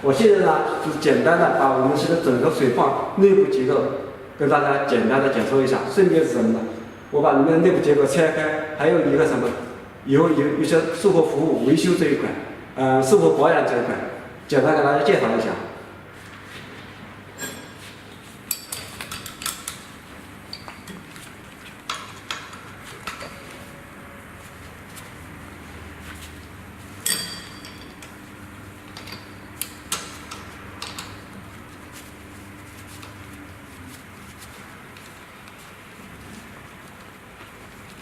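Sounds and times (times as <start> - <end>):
metal tools clanking: 17.4 - 17.8.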